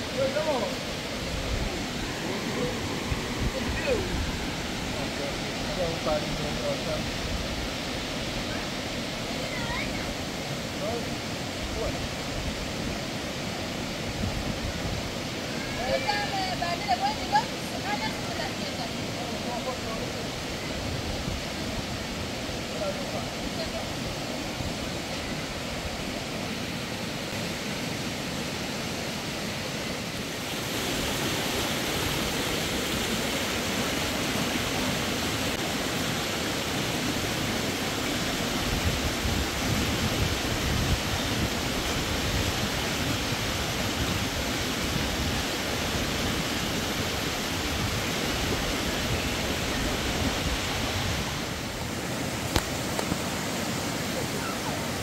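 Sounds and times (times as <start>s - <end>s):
steady rushing noise: 0.0s - 55.0s.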